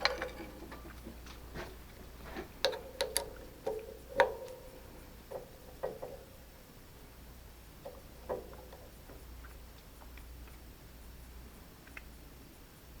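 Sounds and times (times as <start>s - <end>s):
metal clicks and taps: 2.6s - 4.7s.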